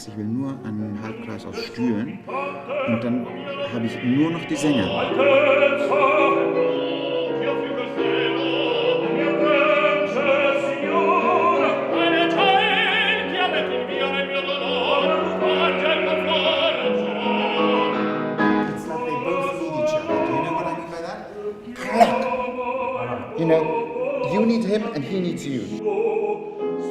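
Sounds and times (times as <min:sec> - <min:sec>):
opera singing with vibrato: 0:00.8 - 0:26.9.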